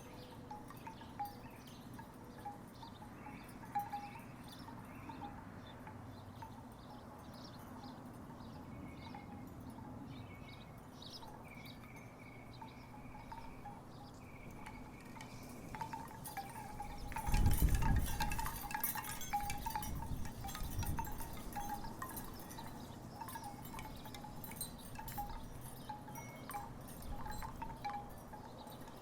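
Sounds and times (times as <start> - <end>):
wooden wind chimes clacking: 0.0 - 29.0
wind rumbling on microphone: 14.1 - 28.7.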